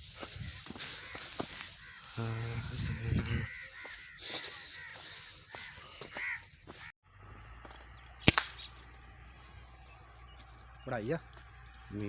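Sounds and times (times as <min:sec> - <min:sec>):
crows cawing: 0:00.0 - 0:12.0
air rifle shot: 0:08.2 - 0:08.7.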